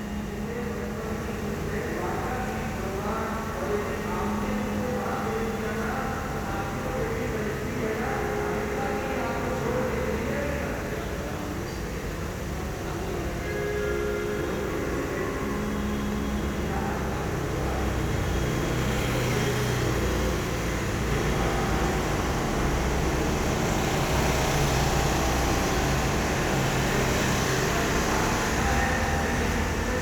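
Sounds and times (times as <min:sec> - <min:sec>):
steady mechanical rumble: 0:19.8 - 0:30.0.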